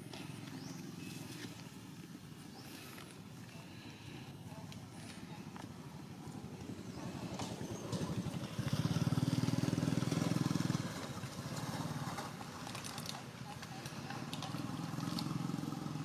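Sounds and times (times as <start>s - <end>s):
small engine running: 7.1s - 16.0s.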